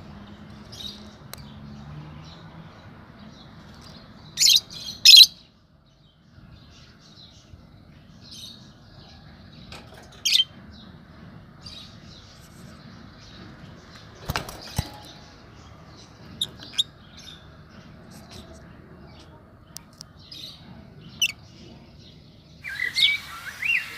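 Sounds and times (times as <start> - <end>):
lovebirds chirping: 0.2 - 11.0, 11.6 - 23.9
sharp bird calls: 22.6 - 23.9.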